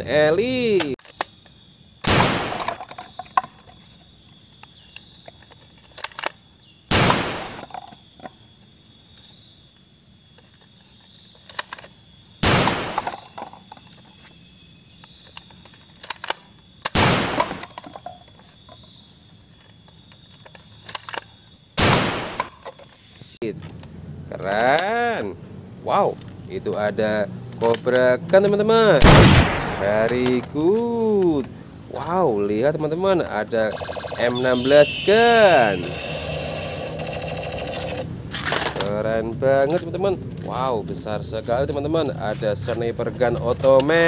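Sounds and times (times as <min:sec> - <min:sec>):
blaster priming clicks: 0:33.7 - 0:38.0.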